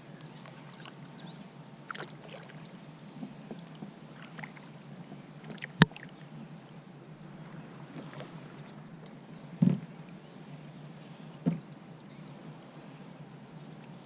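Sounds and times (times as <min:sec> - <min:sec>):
paddle splashes and drips: 0:00.2 - 0:06.3.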